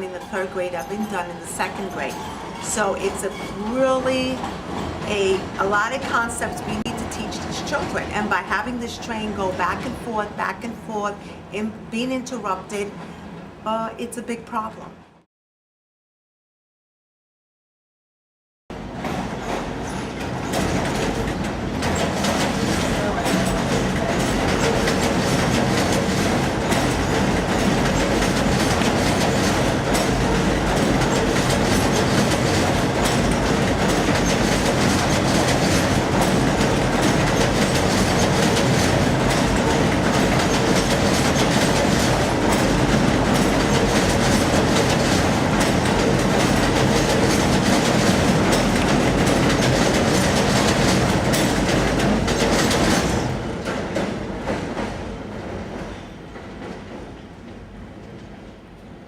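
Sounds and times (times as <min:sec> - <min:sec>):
subway train rumbling and clattering: 0:00.0 - 0:15.2, 0:18.7 - 0:59.0.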